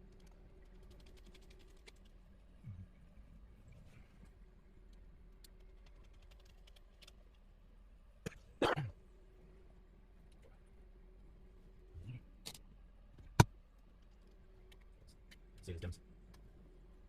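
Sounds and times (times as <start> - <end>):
computer parts clicking and tapping: 0.0 - 2.0, 5.4 - 7.2.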